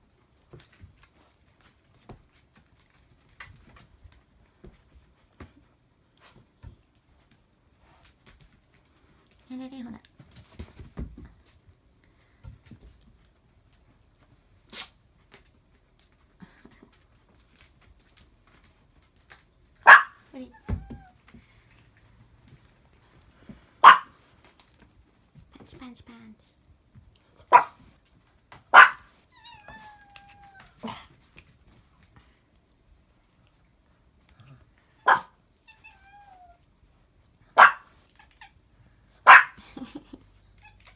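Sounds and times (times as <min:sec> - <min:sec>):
dog barking: 0:19.8 - 0:20.2, 0:23.8 - 0:24.2, 0:27.5 - 0:27.8, 0:28.7 - 0:29.1, 0:35.0 - 0:35.4, 0:37.6 - 0:37.9, 0:39.2 - 0:39.6
dog whining: 0:29.4 - 0:31.0.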